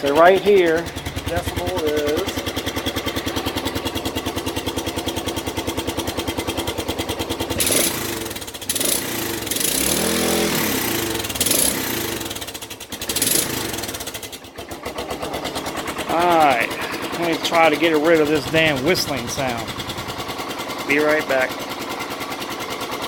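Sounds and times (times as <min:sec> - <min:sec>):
motorcycle engine idling and revving: 0:00.0 - 0:23.0.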